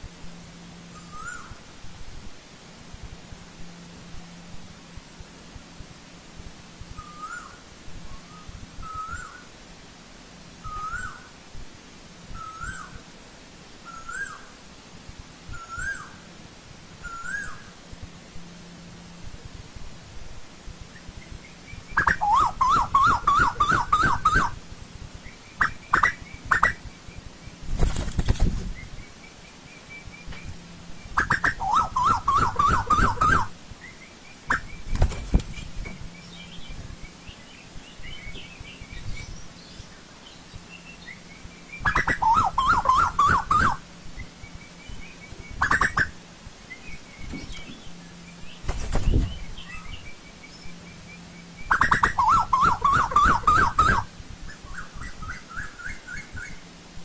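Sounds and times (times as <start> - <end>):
faint low hum: 0.0 - 57.0
bird calling rising notes: 0.9 - 1.6, 7.0 - 9.5, 10.6 - 11.3, 12.3 - 13.0, 13.8 - 14.5, 15.5 - 16.2, 17.0 - 17.7, 20.9 - 24.6, 28.8 - 34.9, 36.1 - 56.6
koel calling: 21.9 - 24.6, 25.6 - 26.8, 31.2 - 33.6, 41.8 - 43.8, 51.7 - 54.1.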